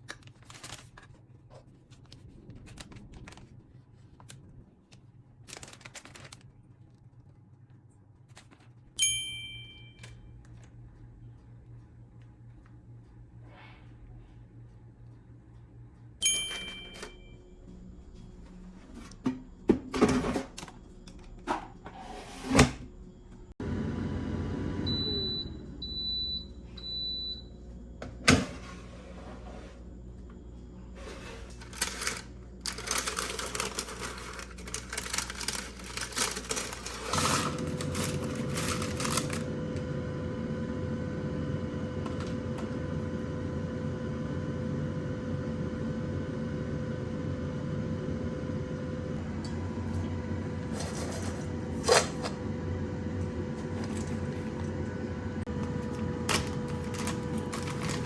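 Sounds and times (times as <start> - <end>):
electrical hum: 0.0 - 58.0
appliance clicks: 49.4 - 58.0.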